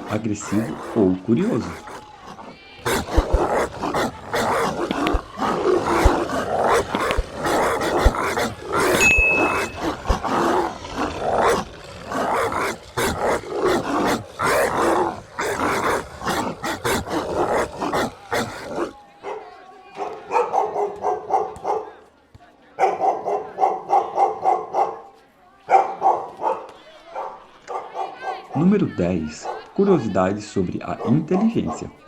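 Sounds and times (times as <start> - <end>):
dog growling and barking: 0.0 - 19.0.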